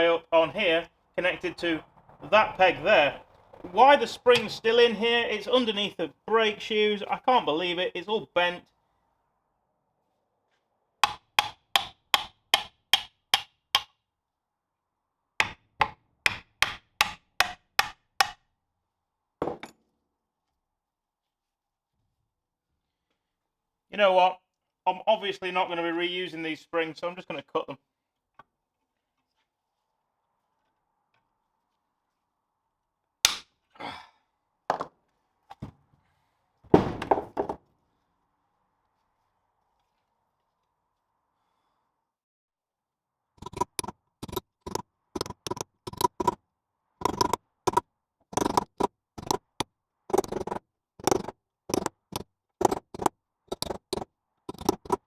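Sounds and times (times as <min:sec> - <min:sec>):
hammer strikes: 0:04.3 - 0:04.6, 0:11.0 - 0:13.9, 0:15.4 - 0:18.4, 0:43.4 - 0:46.4, 0:47.0 - 0:47.8, 0:48.4 - 0:55.0
dull knock: 0:11.0 - 0:13.1.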